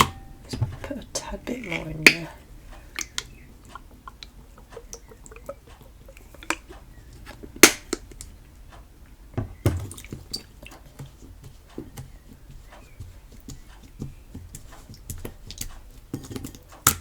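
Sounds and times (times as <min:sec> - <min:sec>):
slime squelching: 0:00.0 - 0:08.4.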